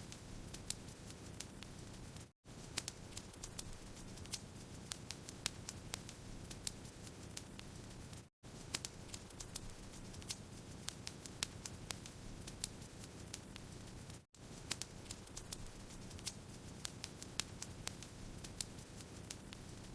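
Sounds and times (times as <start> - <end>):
wood fire crackling and popping: 0.1 - 19.9.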